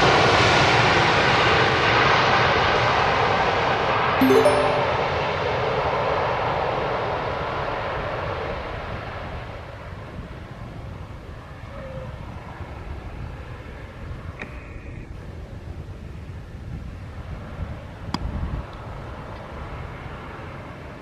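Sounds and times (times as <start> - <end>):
short tones: 4.2 - 5.3.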